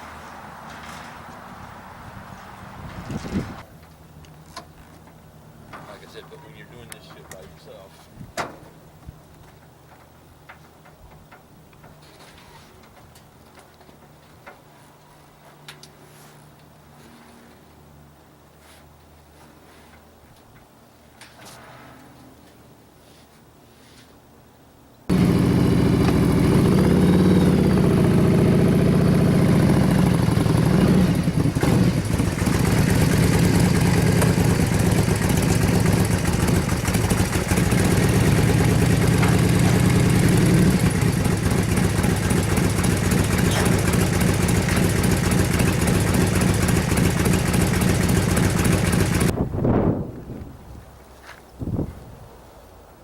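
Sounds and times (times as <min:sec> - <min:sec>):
motorcycle engine running: 0:25.1 - 0:49.4.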